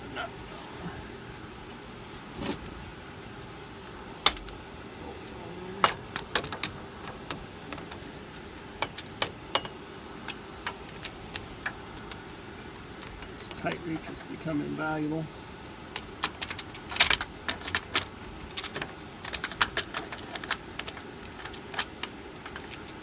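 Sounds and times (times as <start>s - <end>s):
metal tools clinking against metal: 5.8s - 6.8s, 8.8s - 9.9s.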